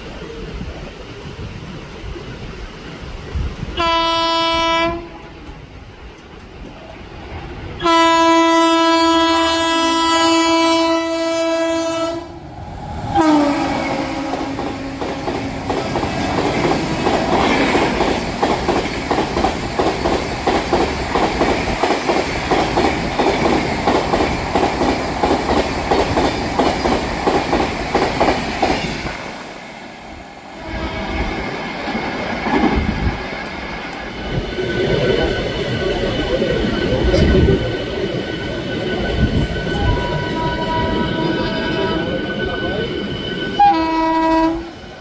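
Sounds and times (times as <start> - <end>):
train horn blasts: 3.8 - 5.4, 7.8 - 12.4, 13.1 - 15.6, 30.6 - 31.3, 39.8 - 42.0, 43.6 - 44.8.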